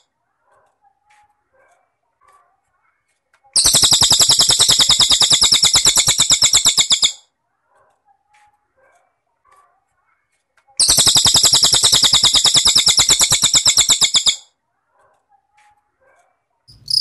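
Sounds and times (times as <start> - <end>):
faint chirps: 3.6 - 7.2, 10.8 - 14.4, 16.7 - 17.0.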